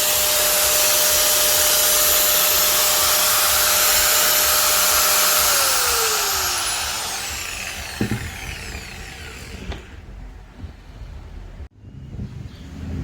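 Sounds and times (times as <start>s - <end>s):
grinder motor whining: 0.0s - 10.1s.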